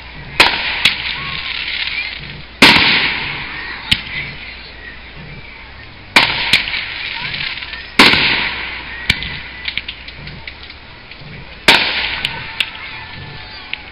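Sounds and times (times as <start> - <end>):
firework shells bursting: 0.0 - 4.2, 6.1 - 12.8
firework crack: 0.0 - 4.6, 6.1 - 13.9
hissing firework crackle: 0.0 - 13.9.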